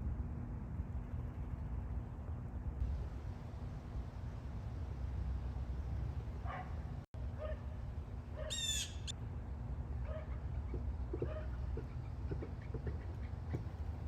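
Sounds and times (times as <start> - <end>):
faint bird calls: 8.4 - 9.1
harsh buzzy bird call: 8.4 - 9.1.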